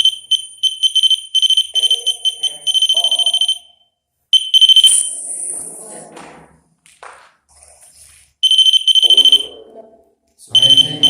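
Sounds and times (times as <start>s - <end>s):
pulsing high electronic alarm tone: 0.0s - 5.2s, 8.4s - 9.6s, 10.5s - 11.0s.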